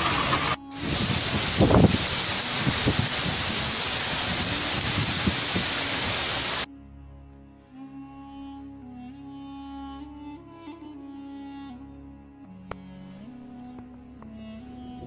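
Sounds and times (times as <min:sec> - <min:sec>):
torrential rain and wind: 0:00.0 - 0:06.7
soft string music: 0:00.6 - 0:15.0
low gusty rumbles: 0:00.8 - 0:06.7.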